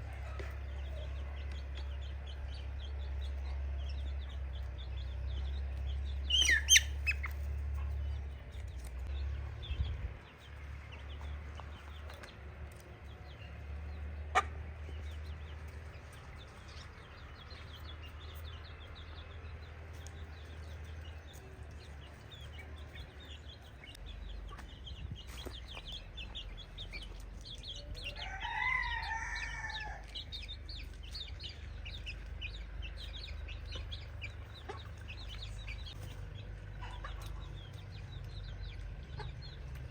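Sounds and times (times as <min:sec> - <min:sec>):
low rumble: 0:00.0 - 0:12.6
chickens clucking and calling: 0:00.0 - 0:39.9.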